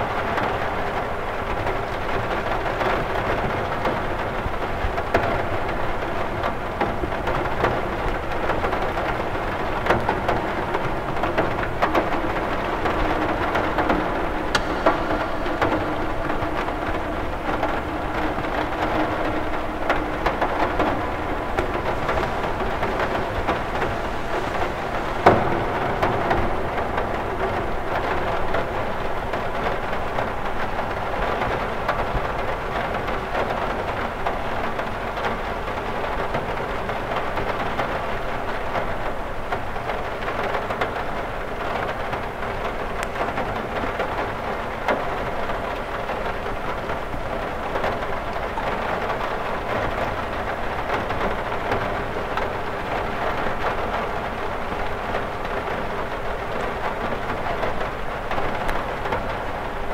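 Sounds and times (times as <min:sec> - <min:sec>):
rain on window glass: 0:00.0 - 0:59.9
loud tap: 0:14.5 - 0:15.8.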